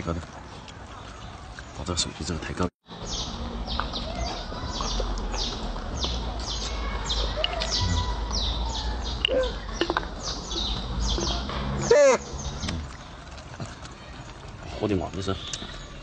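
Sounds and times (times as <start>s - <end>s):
bird calling with downward chirps: 3.0s - 12.9s.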